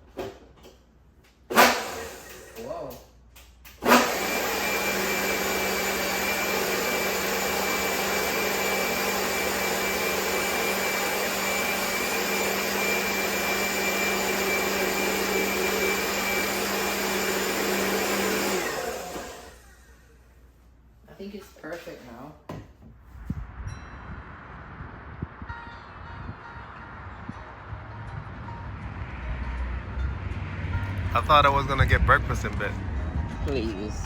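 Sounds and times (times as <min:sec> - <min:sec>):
electric blender running: 0:01.5 - 0:02.8, 0:03.8 - 0:20.2.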